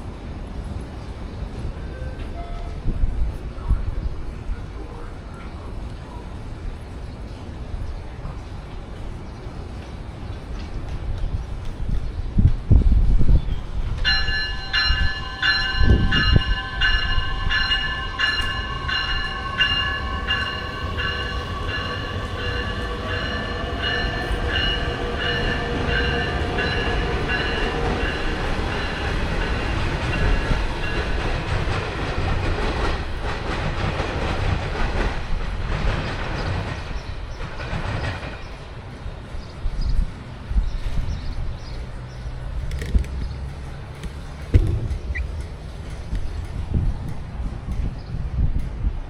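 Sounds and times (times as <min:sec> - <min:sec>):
train rumble and clatter: 0:00.0 - 0:49.0
bell ringing: 0:14.1 - 0:29.6
low thumps: 0:44.5 - 0:46.9.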